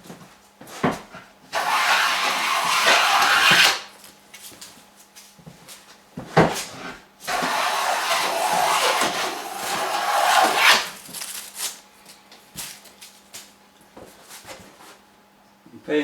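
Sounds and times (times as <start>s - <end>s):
hand plane shaving hiss: 1.5s - 3.9s, 7.2s - 11.0s.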